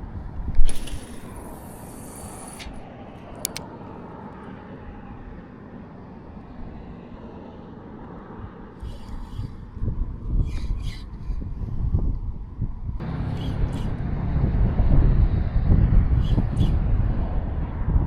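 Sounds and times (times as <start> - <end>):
wind rumble on microphone: 0.0 - 18.0
line hissing off spool: 0.6 - 2.8
sharp reel clicks: 0.6 - 2.8, 3.4 - 3.6.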